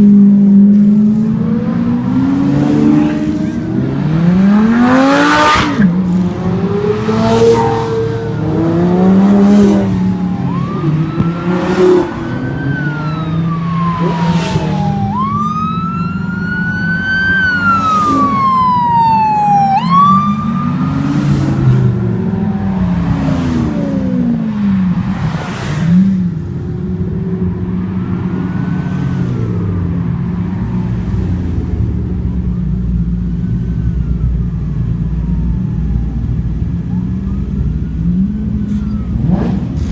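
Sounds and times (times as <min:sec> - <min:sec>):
car engines revving: 0:00.0 - 0:39.9
siren wailing: 0:06.6 - 0:24.4, 0:32.6 - 0:39.5.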